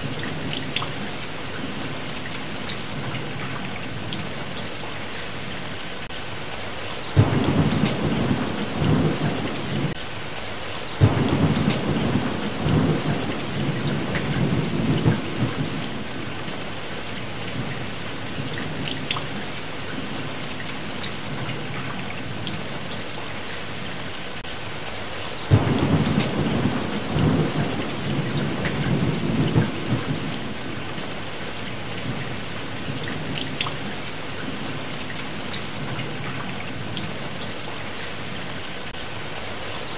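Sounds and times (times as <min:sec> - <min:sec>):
steady rain: 0:00.0 - 0:39.9
thunder rumbling: 0:07.2 - 0:10.0, 0:11.0 - 0:16.4, 0:25.5 - 0:33.8.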